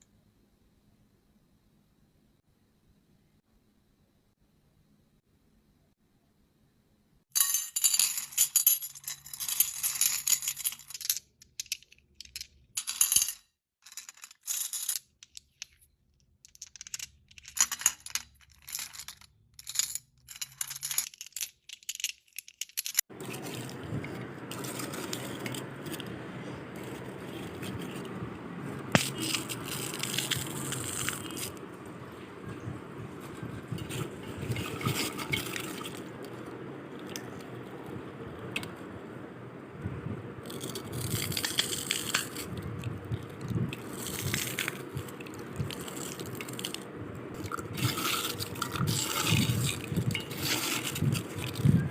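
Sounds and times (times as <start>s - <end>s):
small hard objects rattling: 29.0s - 31.6s, 40.4s - 46.8s, 47.4s - 51.9s.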